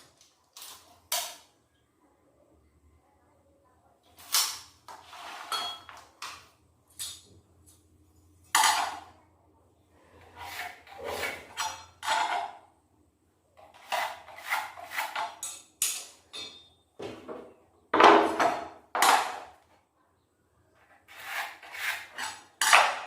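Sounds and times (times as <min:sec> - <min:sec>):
tools knocking and clattering: 0:11.5 - 0:12.6, 0:15.2 - 0:19.6.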